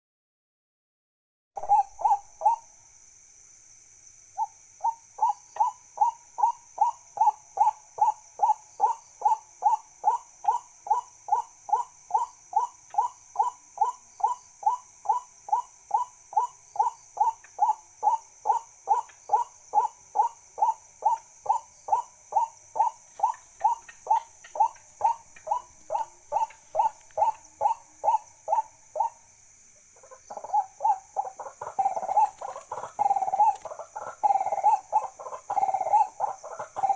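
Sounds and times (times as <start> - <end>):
high-pitched hiss: 21.4 - 36.9.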